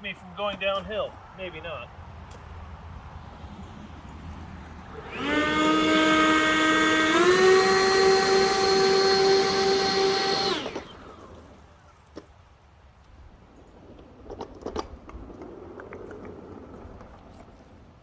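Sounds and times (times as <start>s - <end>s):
leaf blowers whining: 4.8s - 12.0s.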